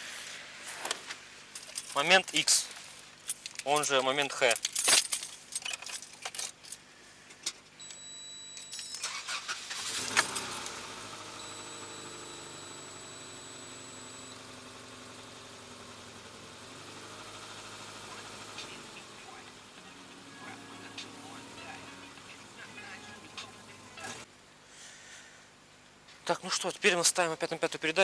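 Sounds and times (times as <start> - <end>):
engine cranking: 9.0 - 14.4
car engine idling: 9.7 - 24.3.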